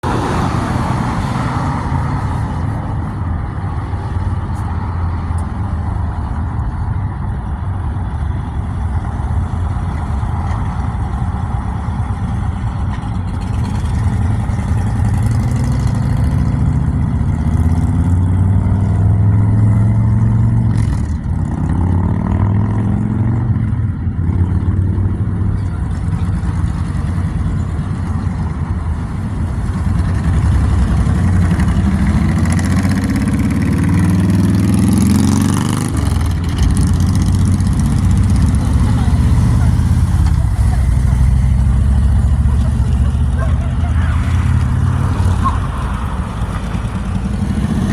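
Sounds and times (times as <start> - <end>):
motorcycle engine running: 8.1 - 44.6.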